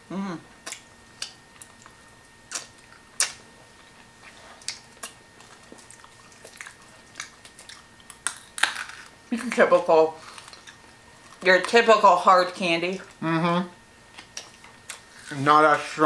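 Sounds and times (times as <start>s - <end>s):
hard candy crunching: 4.6s - 11.8s.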